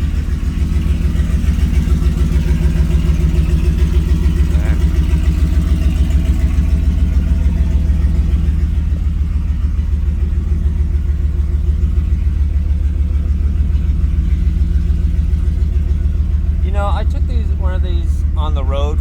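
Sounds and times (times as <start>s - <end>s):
car engine throbbing: 0.0s - 19.0s.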